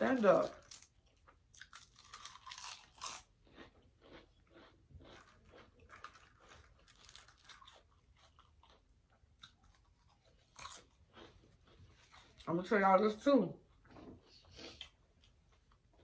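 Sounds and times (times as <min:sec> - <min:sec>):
chips crunching: 0:00.0 - 0:11.4.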